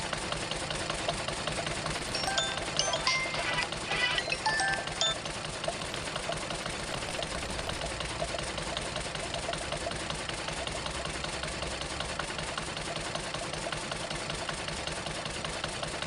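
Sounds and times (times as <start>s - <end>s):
diesel engine clattering: 0.0s - 16.0s.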